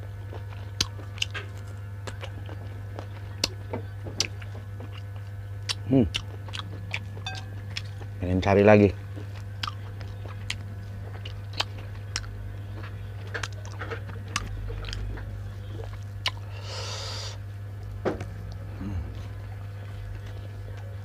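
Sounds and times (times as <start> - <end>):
low hum: 0.0 - 21.0
chewing and biting: 0.2 - 8.2, 9.0 - 16.5.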